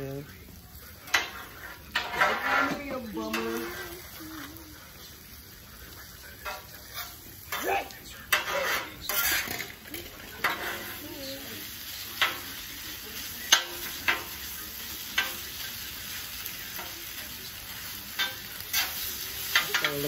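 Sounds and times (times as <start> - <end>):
food sizzling on hot surface: 0.0 - 20.0
metal utensil scraping and knocking: 1.1 - 4.0, 8.3 - 11.0.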